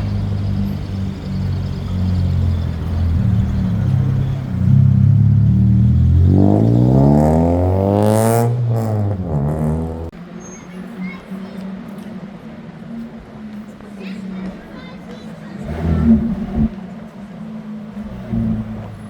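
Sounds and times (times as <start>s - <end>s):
car engine revving past: 0.0s - 10.2s, 15.6s - 16.9s, 17.9s - 19.0s.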